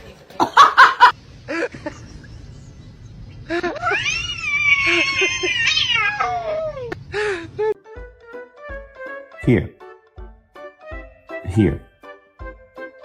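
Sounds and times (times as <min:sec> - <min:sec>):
cat meowing: 0:03.8 - 0:07.0.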